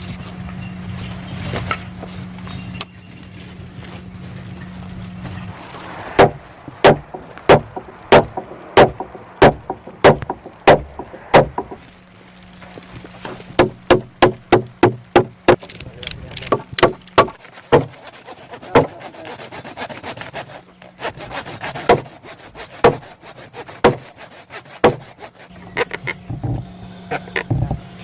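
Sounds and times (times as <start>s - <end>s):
low steady hum: 0.0s - 28.0s
hammer striking wood: 6.2s - 11.8s, 13.6s - 15.7s, 16.5s - 18.0s, 18.7s - 19.0s, 21.8s - 22.1s, 22.8s - 23.0s, 23.8s - 24.0s, 24.8s - 25.1s.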